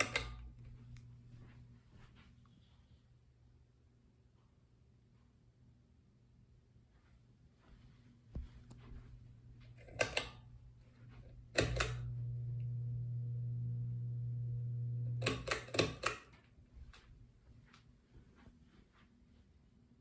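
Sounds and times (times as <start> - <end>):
pull-chain switch clicking: 0.0 - 0.6, 9.8 - 10.4, 11.5 - 12.1, 15.2 - 16.4
low electrical hum: 0.0 - 20.0.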